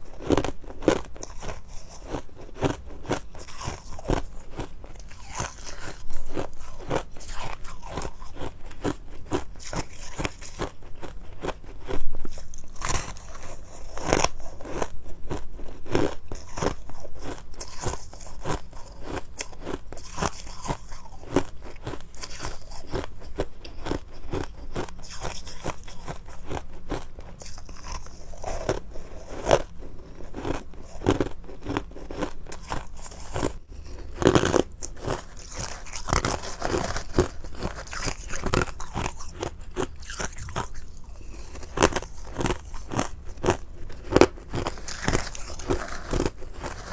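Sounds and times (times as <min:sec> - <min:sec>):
ice being chewed: 0:00.0 - 0:46.9.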